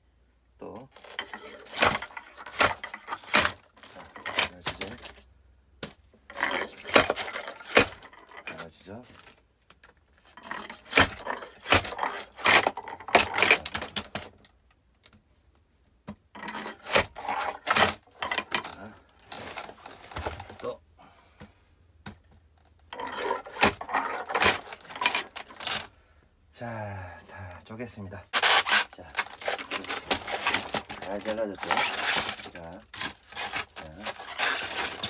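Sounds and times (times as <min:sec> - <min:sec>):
wood pieces clattering: 0:00.9 - 0:05.3, 0:06.3 - 0:14.5, 0:16.4 - 0:20.7, 0:22.8 - 0:25.9, 0:28.3 - 0:35.0.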